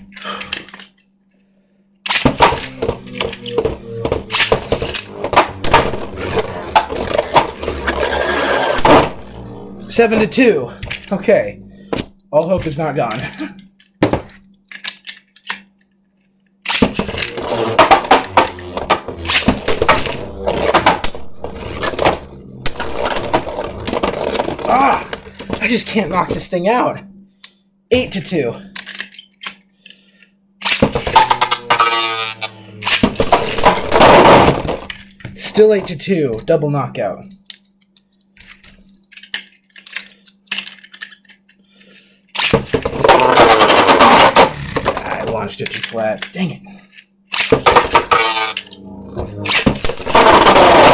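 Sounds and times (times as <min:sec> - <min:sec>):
steady spinning hum: 0:02.4 - 0:12.0, 0:16.9 - 0:27.4
plastic clicks and rattles: 0:13.8 - 0:15.9, 0:28.7 - 0:29.6, 0:37.3 - 0:41.6.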